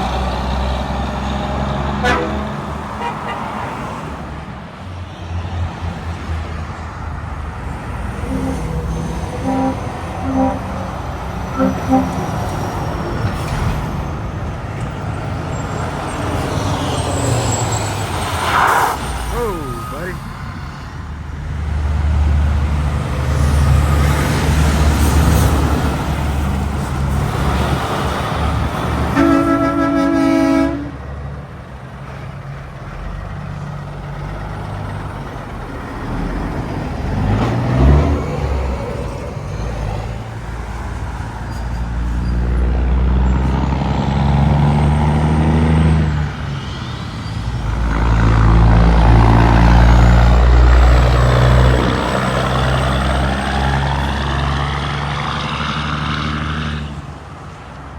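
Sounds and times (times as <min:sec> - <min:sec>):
heavy trucks passing: 0:00.0 - 0:57.9
truck horn blast: 0:01.9 - 0:03.8, 0:08.1 - 0:12.6, 0:29.1 - 0:31.0.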